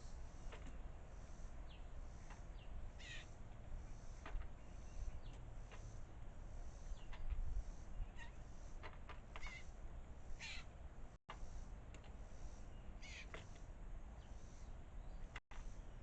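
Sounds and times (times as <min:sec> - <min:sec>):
birds chirping: 0:00.0 - 0:08.5, 0:09.2 - 0:10.8, 0:12.1 - 0:16.0
harsh bird call: 0:13.0 - 0:13.4.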